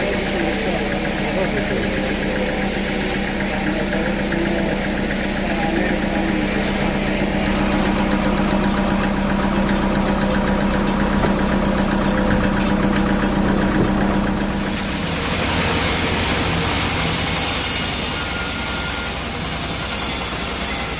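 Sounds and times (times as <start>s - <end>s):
sawmill machinery humming: 0.0s - 20.9s
saw cutting log hiss: 14.5s - 20.9s.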